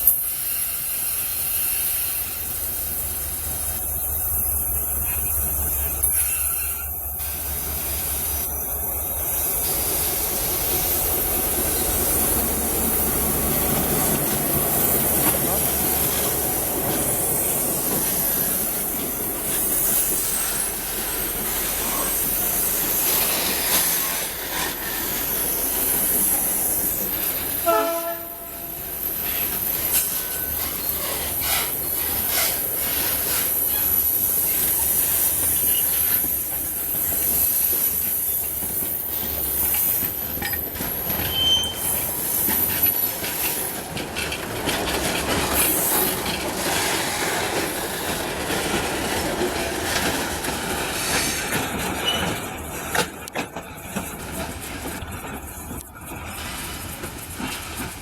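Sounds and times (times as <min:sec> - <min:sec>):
train wheels rumbling and clattering: 0:00.0 - 0:58.0
train horn blast: 0:27.6 - 0:28.8
high-pitched wheel squeal: 0:41.2 - 0:43.1.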